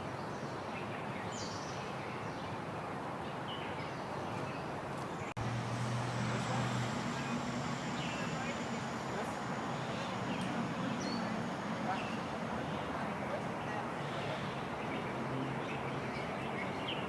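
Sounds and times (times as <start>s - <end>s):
background hiss: 4.4s - 15.0s
low steady hum: 5.4s - 14.0s
bird chirps: 6.4s - 13.0s.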